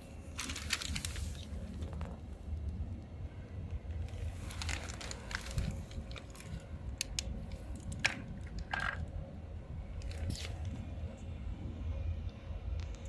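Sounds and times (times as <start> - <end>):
crinkly rustles of handled objects: 0.0 - 2.7, 4.0 - 9.1, 10.0 - 10.9
low steady hum: 0.0 - 13.0.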